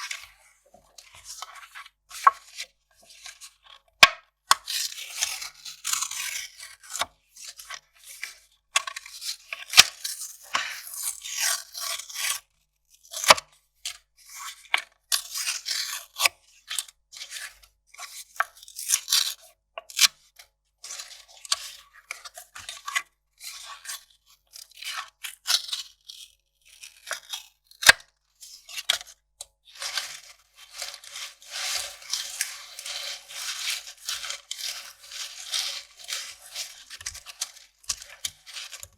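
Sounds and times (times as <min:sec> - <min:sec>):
paper ripping and crinkling: 0:29.8 - 0:38.9.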